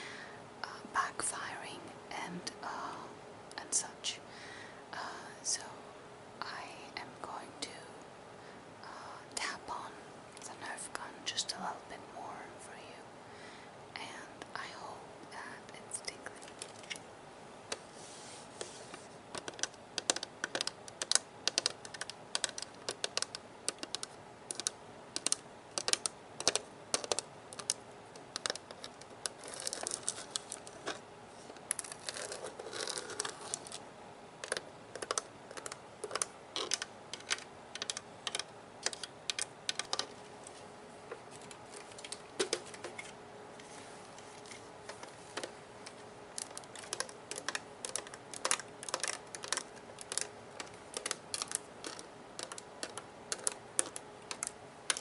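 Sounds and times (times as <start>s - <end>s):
scratching on plastic: 17.7s - 33.8s, 34.4s - 55.0s
fingernails tapping on plastic: 19.4s - 28.8s, 46.4s - 55.0s.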